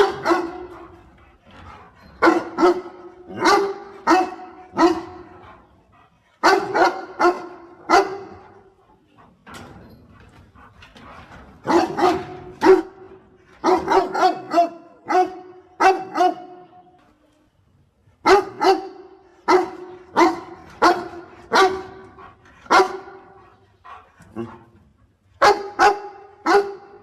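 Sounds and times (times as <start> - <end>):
dog barking: 0.0 - 0.7, 2.2 - 5.4, 6.4 - 8.5, 11.6 - 16.7, 18.2 - 22.0, 22.7 - 24.6, 25.4 - 27.0.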